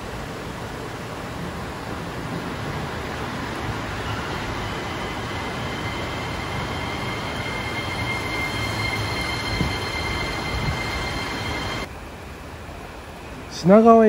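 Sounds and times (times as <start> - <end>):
train rumbling past: 0.0 - 14.0
high brake squeal: 3.1 - 11.9.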